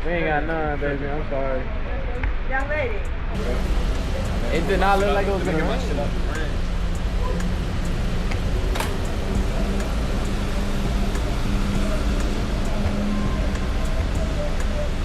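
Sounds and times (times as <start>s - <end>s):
faint hum: 3.0s - 15.0s
low rumble: 3.0s - 15.0s
steady rain: 3.4s - 15.0s.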